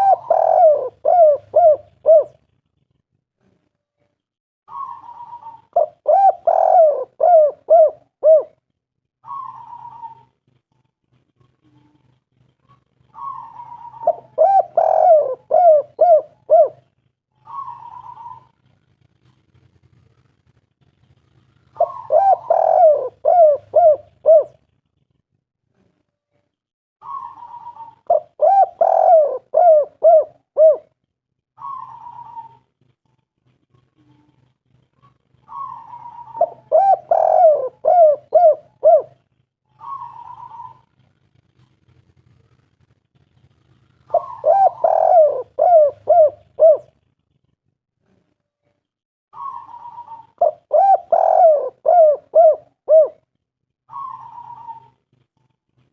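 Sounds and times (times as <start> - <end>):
dove cooing: 0.0 - 3.0, 4.7 - 20.3, 21.1 - 25.0, 27.0 - 31.0, 31.6 - 42.7, 43.3 - 48.3, 49.4 - 53.3, 53.9 - 55.6.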